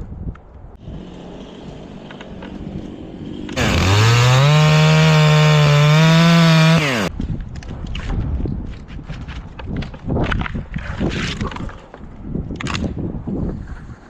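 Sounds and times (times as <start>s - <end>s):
chainsaw revving: 3.6s - 7.1s.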